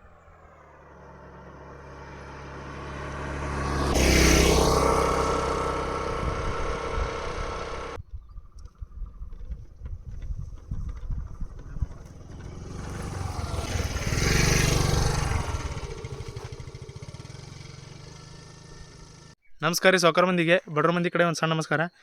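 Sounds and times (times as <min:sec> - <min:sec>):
vehicle engine passing by: 0:00.0 - 0:08.0, 0:11.3 - 0:19.4.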